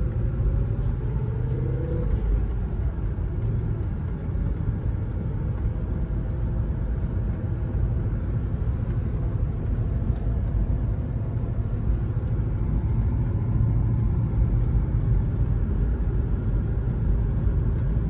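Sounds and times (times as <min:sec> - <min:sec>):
car engine low rumble: 0:00.0 - 0:18.0
road noise: 0:00.0 - 0:18.0.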